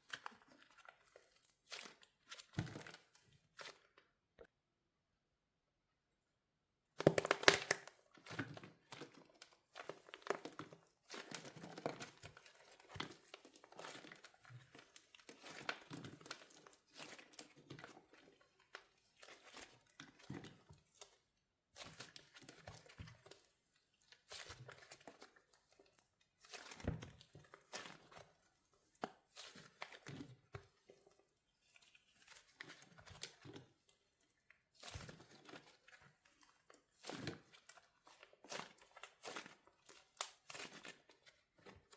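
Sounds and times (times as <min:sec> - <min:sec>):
wax shell cracking: 0:07.0 - 0:07.9.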